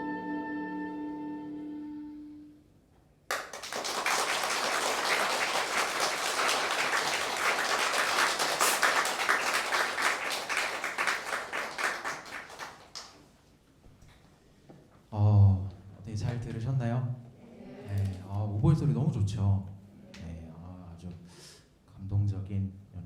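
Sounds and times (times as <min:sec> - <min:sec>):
audience applauding: 0:03.3 - 0:13.3.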